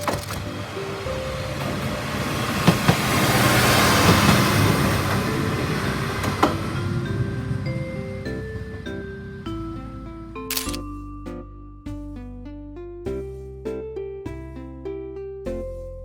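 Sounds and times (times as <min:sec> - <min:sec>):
wheels clacking over rail joints: 0:00.0 - 0:09.5
diesel railcar passing: 0:00.0 - 0:10.4.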